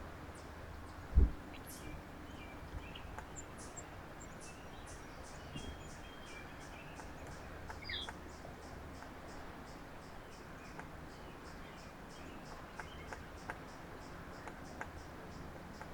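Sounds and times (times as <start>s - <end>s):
small birds chirping: 0.3s - 15.9s.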